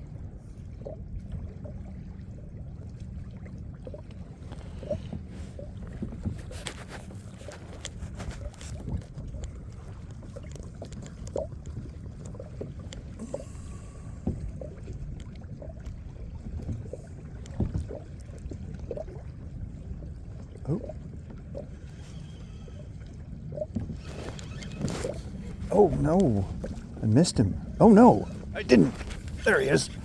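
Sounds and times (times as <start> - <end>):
water slapping against kayak hull: 3.7 - 22.2, 23.1 - 30.0
steady low rumble: 25.2 - 30.0.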